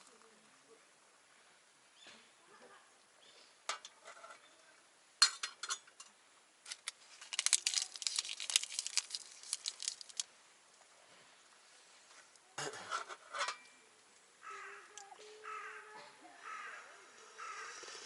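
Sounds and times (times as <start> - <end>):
small hard objects clicking: 6.7 - 10.3.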